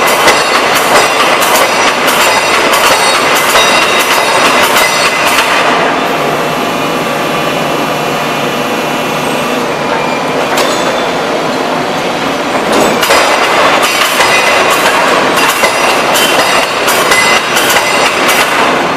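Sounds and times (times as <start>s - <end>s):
forging hammer ringing blows: 0.0s - 5.6s, 15.4s - 18.6s
hydraulic shop noise: 0.0s - 18.9s.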